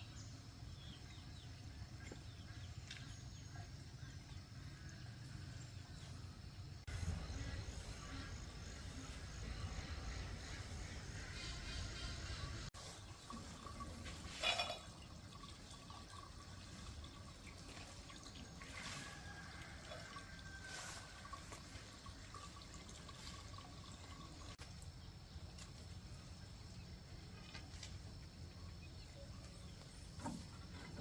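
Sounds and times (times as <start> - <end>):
water trickling and dripping: 12.7 - 28.7.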